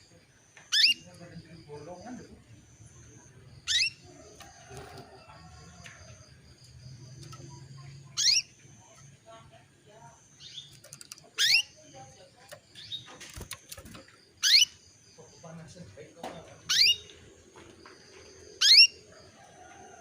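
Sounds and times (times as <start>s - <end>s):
canary calling: 0.6s - 2.2s, 3.5s - 4.5s, 7.1s - 9.1s, 10.3s - 13.6s, 14.3s - 15.0s, 16.6s - 17.2s, 18.6s - 19.1s.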